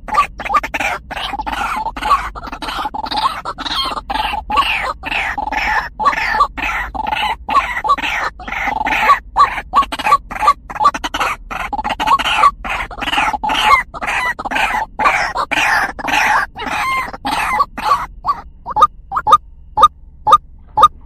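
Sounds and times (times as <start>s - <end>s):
waterhen calling harsh notes: 0.0s - 21.0s.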